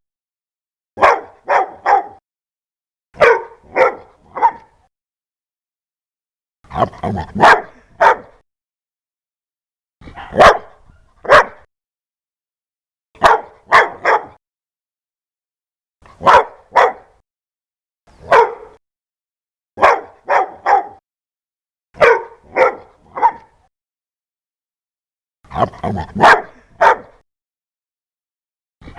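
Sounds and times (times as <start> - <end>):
dog barking loudly: 1.0 - 2.2, 3.2 - 4.8, 7.0 - 8.4, 10.2 - 11.7, 13.2 - 14.4, 16.2 - 17.2, 18.2 - 18.8, 19.8 - 21.0, 22.0 - 23.6, 25.5 - 27.2.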